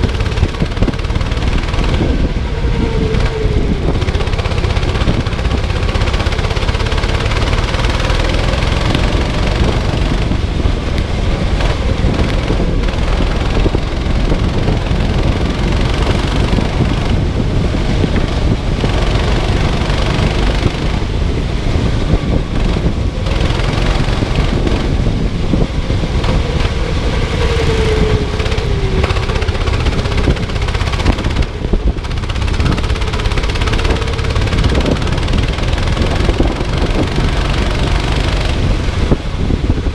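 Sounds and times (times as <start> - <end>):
go-kart engine running: 0.0 - 39.9
loud low rumble: 0.0 - 39.9.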